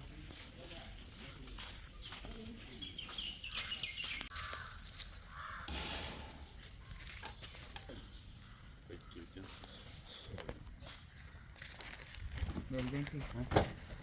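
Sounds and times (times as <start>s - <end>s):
crows cawing: 4.3s - 7.2s, 10.9s - 11.9s
hiss-like noise burst: 5.7s - 6.9s.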